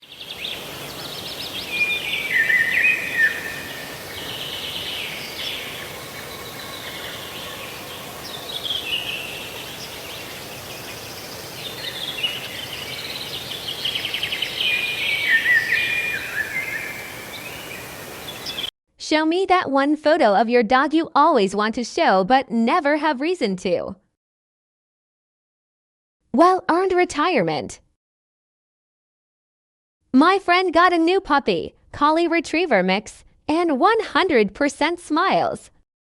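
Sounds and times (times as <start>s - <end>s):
songbird trilling: 0.0s - 18.7s
steady background hiss: 0.0s - 18.7s.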